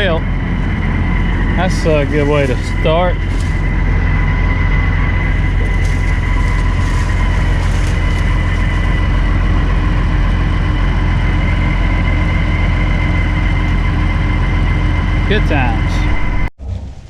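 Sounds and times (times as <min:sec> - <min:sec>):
combine engine rumbling: 0:00.0 - 0:17.0
machinery high whine: 0:00.0 - 0:17.0.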